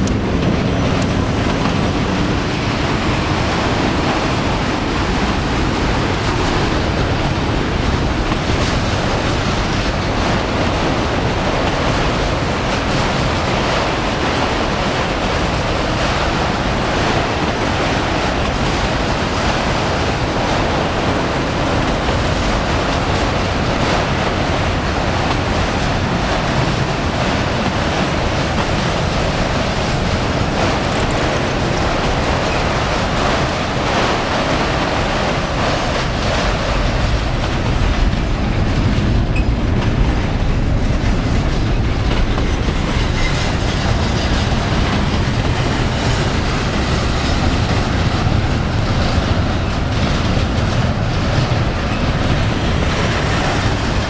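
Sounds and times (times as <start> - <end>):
train wheels running on rails: 0.0 - 54.0.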